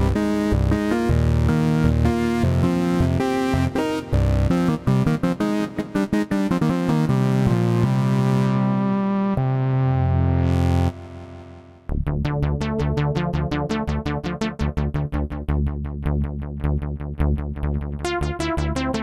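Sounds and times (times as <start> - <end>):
short plucked synth notes: 0.0 - 5.8
synthesizer chord: 0.0 - 11.9
low synth bass line: 0.0 - 19.0.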